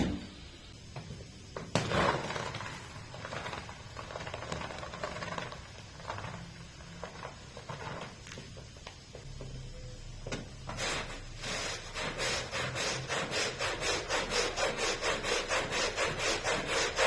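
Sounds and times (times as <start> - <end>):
carpet scrubbing and rubbing: 10.7 - 17.0.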